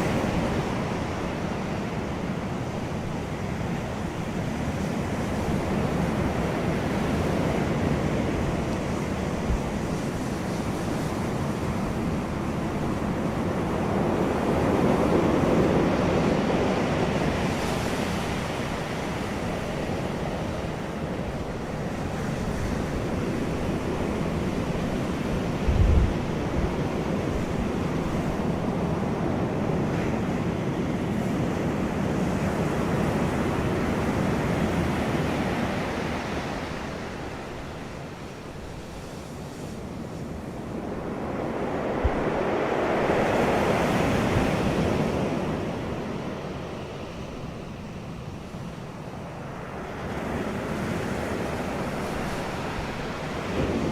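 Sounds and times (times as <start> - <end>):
wind buffeting microphone: 0.0 - 48.4, 49.2 - 53.9
wind blowing: 34.8 - 53.9.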